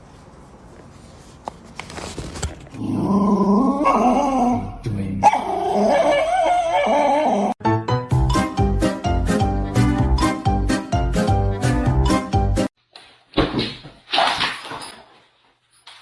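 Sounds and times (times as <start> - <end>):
dog wavering calls: 5.2 - 7.6.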